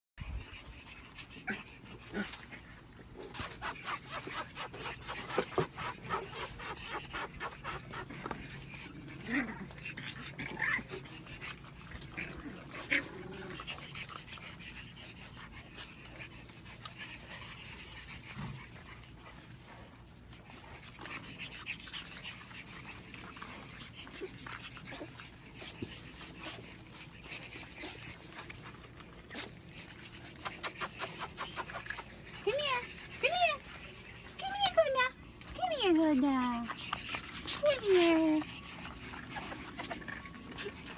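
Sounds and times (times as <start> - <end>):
puppies scuffling: 0.3 - 40.9
puppy whining: 20.6 - 40.9.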